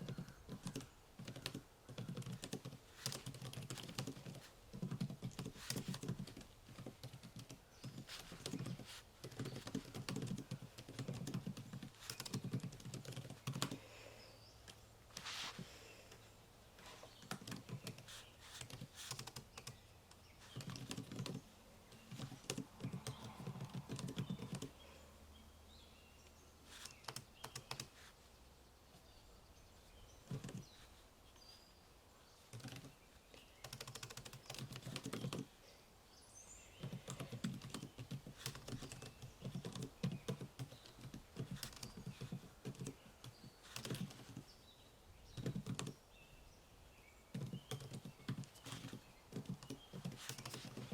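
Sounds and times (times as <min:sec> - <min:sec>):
typing on computer keyboard: 0:00.0 - 0:13.8, 0:17.2 - 0:19.8, 0:20.4 - 0:21.4, 0:22.0 - 0:24.7, 0:26.7 - 0:27.9, 0:30.3 - 0:30.6, 0:32.5 - 0:32.9, 0:33.6 - 0:35.5, 0:36.8 - 0:44.4, 0:45.4 - 0:45.9, 0:47.3 - 0:50.9.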